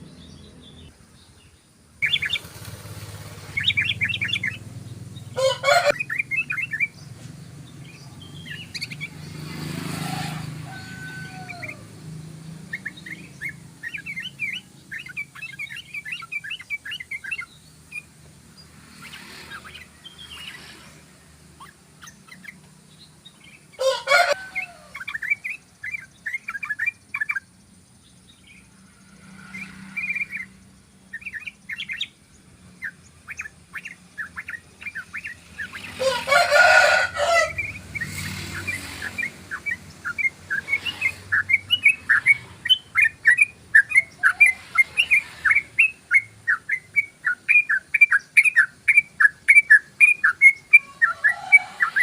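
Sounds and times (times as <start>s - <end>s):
bird chirping call: 0.0s - 52.0s
harsh bird call burst: 2.0s - 4.6s, 5.2s - 6.9s, 35.2s - 52.0s.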